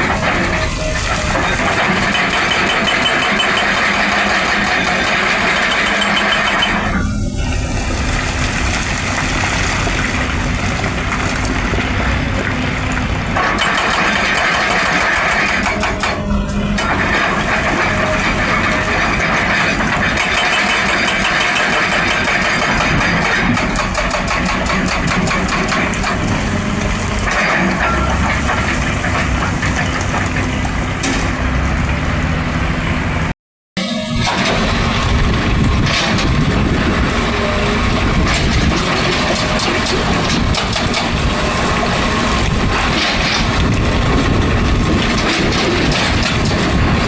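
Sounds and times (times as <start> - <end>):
hydraulic breaker hammering: 0.0 - 7.3, 13.4 - 29.2
excavator engine running: 0.0 - 47.0.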